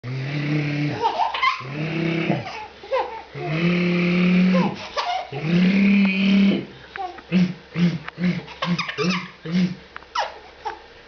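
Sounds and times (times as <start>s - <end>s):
baby laughing: 0.9s - 3.6s, 4.5s - 5.5s, 8.4s - 9.4s, 10.1s - 10.8s
adult making low voice sounds: 3.4s - 9.8s.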